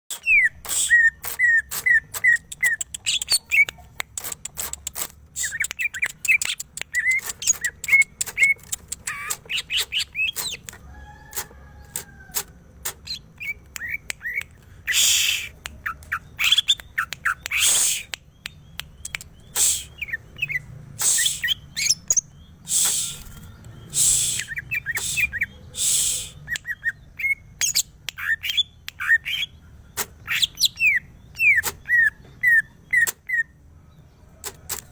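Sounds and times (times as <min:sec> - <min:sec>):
harsh rasping bird calls: 0:00.1 - 0:33.5
bird chirps and clicks: 0:00.1 - 0:34.9.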